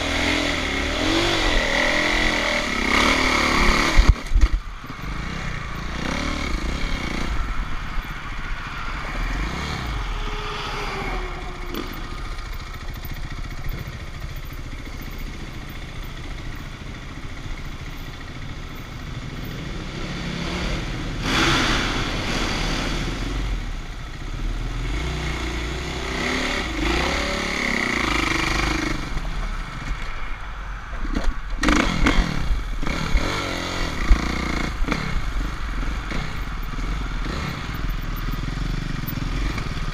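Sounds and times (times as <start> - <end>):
dirt bike engines revving: 0.0 - 16.4, 18.5 - 30.0, 31.1 - 39.9.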